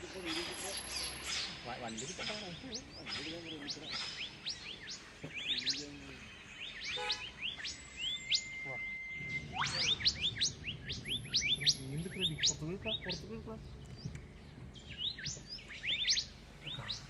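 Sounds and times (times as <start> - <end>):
birds chirping: 0.0 - 17.0
long whistled note: 8.1 - 10.4.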